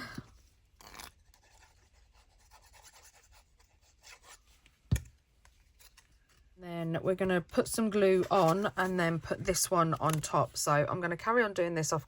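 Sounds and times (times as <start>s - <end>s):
paper cards rustling: 5.4s - 6.6s, 7.6s - 10.6s.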